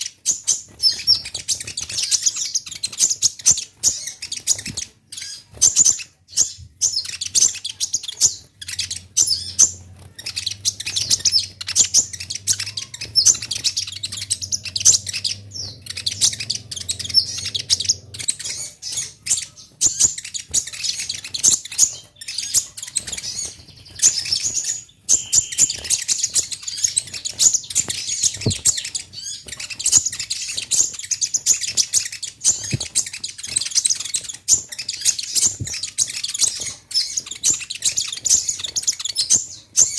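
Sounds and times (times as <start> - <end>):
sunbird chirping and twittering: 0.0 - 39.9
faint low hum: 6.4 - 21.4.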